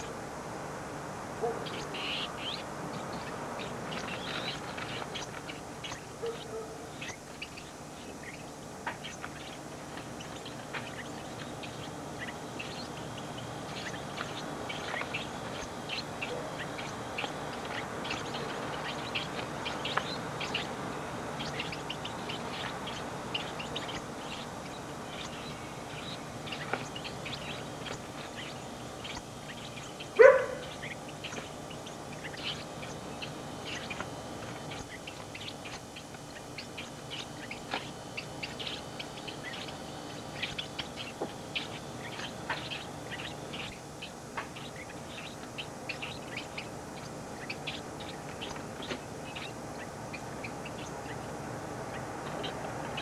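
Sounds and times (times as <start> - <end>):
birds chirping: 0.0 - 53.0
steady hiss: 0.0 - 53.0.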